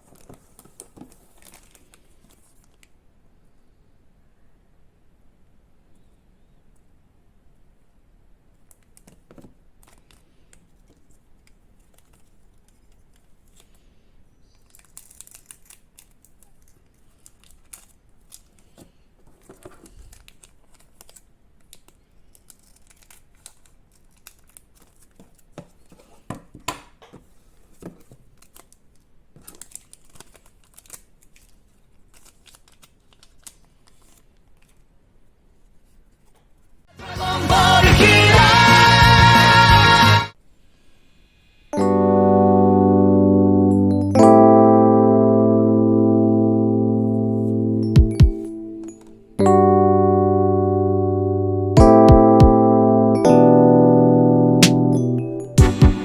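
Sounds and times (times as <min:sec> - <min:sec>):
plastic wrappers tearing and crinkling: 0:00.0 - 0:02.8, 0:14.4 - 0:26.0, 0:28.0 - 0:34.9.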